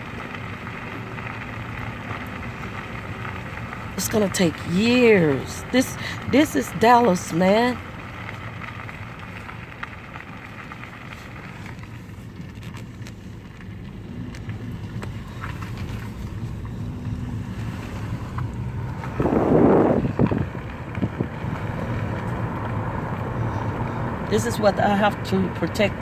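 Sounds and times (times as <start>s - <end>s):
car moving slowly: 0.0s - 26.0s
road noise: 0.0s - 26.0s
wind on microphone: 18.2s - 21.6s.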